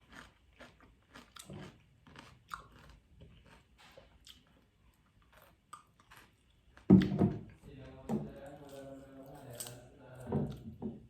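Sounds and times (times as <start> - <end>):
chewing cucumber crunches: 0.0 - 7.2.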